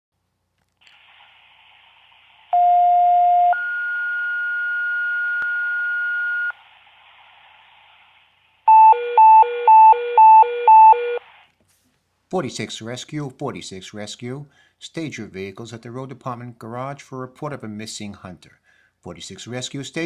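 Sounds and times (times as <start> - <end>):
radio hiss: 0.8 - 3.4, 6.3 - 8.7, 11.2 - 11.5
two-tone page tones: 8.7 - 11.2.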